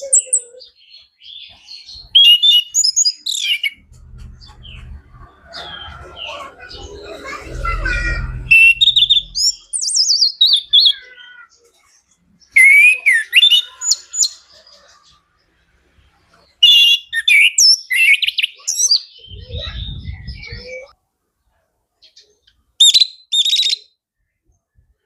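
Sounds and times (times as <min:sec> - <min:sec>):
thrush singing: 0:03.4 - 0:09.8.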